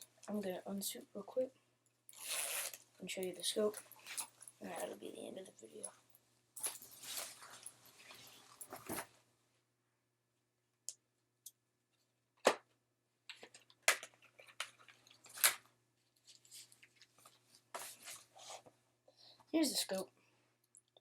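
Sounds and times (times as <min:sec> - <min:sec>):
gear and straps rustling: 0:02.1 - 0:05.0, 0:06.6 - 0:09.2, 0:14.3 - 0:18.7.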